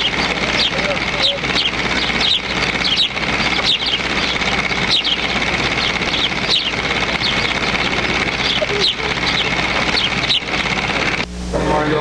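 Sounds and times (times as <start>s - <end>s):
small birds chirping: 0.0s - 11.2s
thin high whine: 0.0s - 12.0s.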